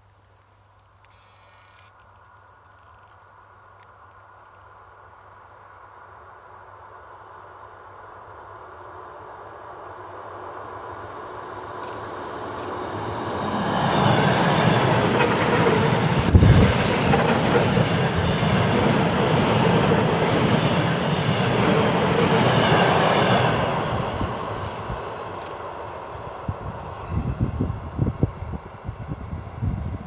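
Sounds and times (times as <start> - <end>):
electric train passing: 6.8 - 30.0.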